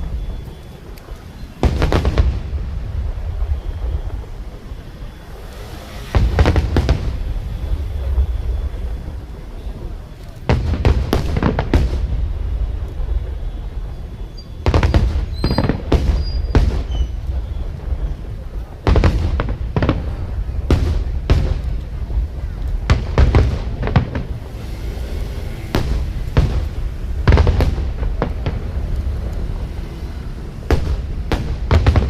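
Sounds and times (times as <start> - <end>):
deep rumble: 0.0 - 32.0
fireworks shells bursting: 13.0 - 18.2.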